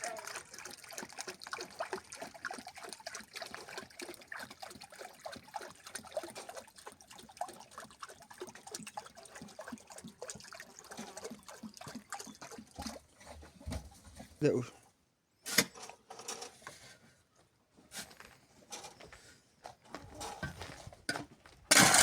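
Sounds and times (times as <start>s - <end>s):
water trickling: 0.0s - 13.4s
water drips and splashes: 0.0s - 13.5s.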